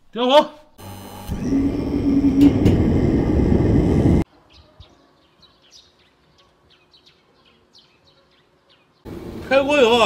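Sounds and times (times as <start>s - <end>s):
gas burner rushing: 0.8s - 4.2s.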